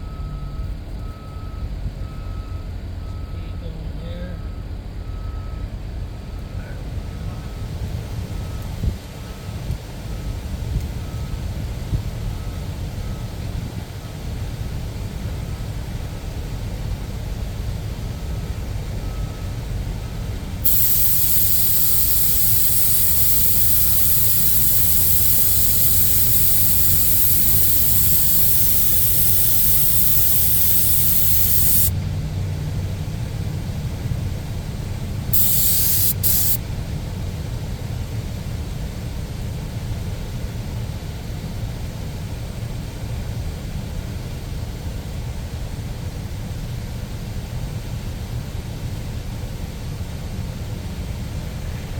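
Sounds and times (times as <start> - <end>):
spray gun hissing: 20.6 - 31.9, 35.4 - 36.6.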